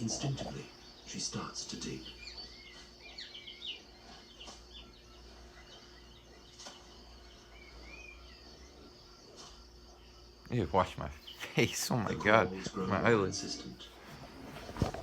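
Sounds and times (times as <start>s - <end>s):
faint high chirping calls: 0.0s - 15.0s
low steady hum: 0.0s - 15.0s.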